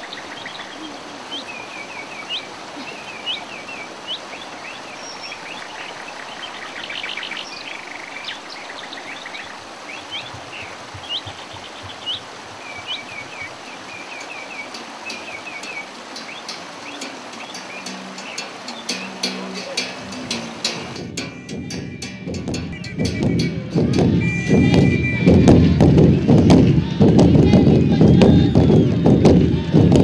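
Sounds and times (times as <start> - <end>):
birds chirping and calling: 0.0 - 30.0
steady outdoor hiss: 0.0 - 30.0.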